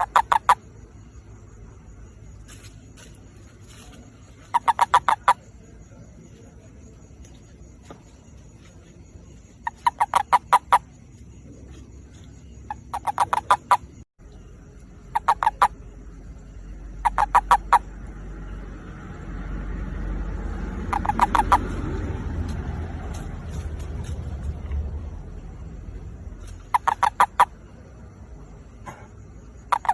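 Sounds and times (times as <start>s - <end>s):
toad mating call: 0.0s - 0.7s, 4.4s - 5.6s, 9.6s - 11.0s, 12.7s - 14.0s, 15.0s - 15.9s, 16.8s - 18.1s, 20.8s - 21.8s, 26.4s - 27.6s, 29.6s - 29.9s
low rumble: 17.8s - 26.8s.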